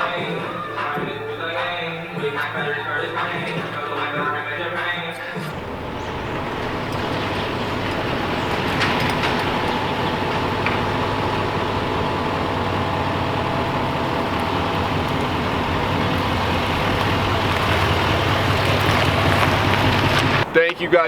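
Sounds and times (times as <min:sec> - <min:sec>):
road noise: 0:00.0 - 0:21.0
truck engine: 0:00.0 - 0:21.0.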